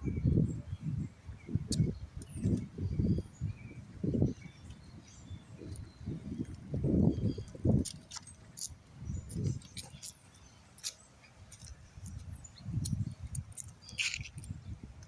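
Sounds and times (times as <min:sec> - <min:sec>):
low rumbles on microphone: 0:00.0 - 0:07.9
birds chirping: 0:00.0 - 0:15.0.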